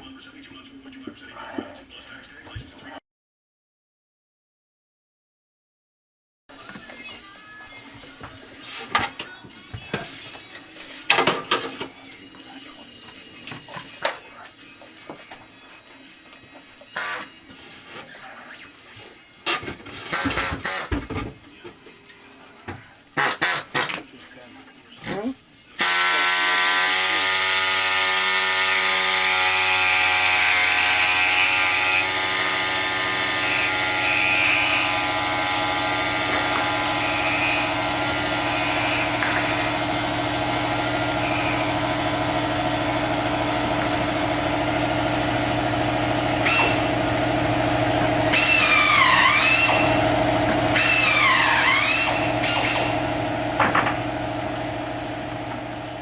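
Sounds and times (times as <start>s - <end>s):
motor running with high hiss: 25.8s - 54.9s.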